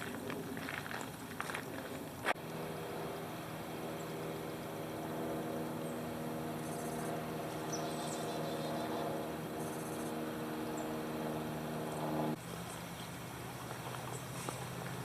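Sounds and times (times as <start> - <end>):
engine idling: 2.4 - 12.7
high pulsing insect chirps: 5.7 - 11.0.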